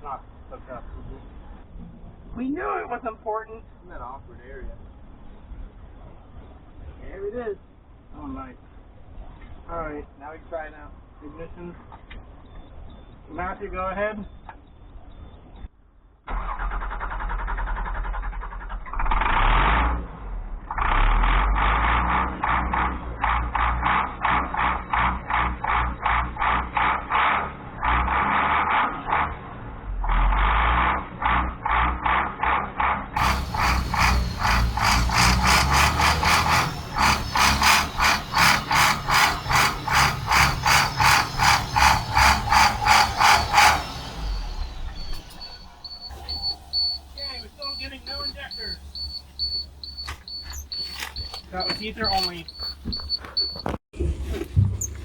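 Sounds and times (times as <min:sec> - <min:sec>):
diesel engine cranking on starter: 0:16.3 - 0:55.0
diesel engine running unevenly: 0:33.2 - 0:55.0.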